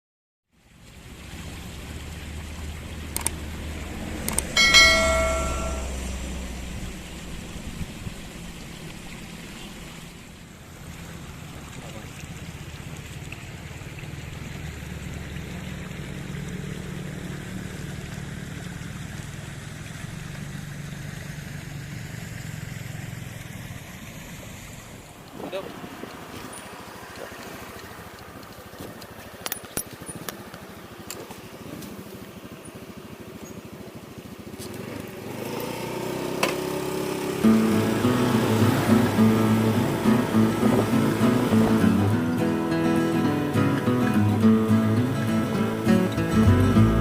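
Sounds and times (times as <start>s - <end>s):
low hum: 2.2s - 8.8s, 46.0s - 47.0s
sharp clicks: 3.2s - 3.4s, 4.2s - 4.6s
loud bell-like strike ringing: 4.6s - 6.5s.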